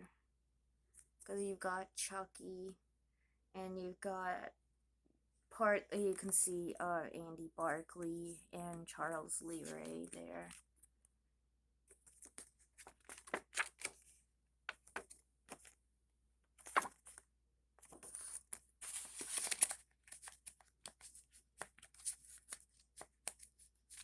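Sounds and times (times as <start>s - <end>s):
paper rustling and crinkling: 11.9s - 14.1s, 14.7s - 15.8s, 16.6s - 17.2s, 17.8s - 24.0s.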